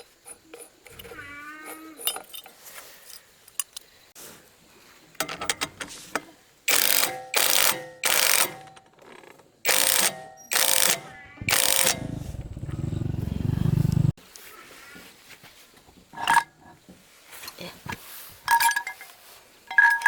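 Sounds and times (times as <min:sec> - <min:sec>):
metallic clicks and clinks: 0:02.0 - 0:03.9.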